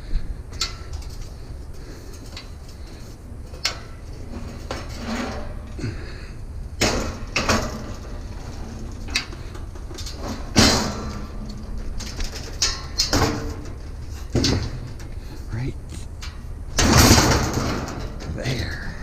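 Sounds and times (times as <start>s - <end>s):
scrap items knocking and clattering: 6.8s - 15.1s
low rumble: 13.4s - 19.0s.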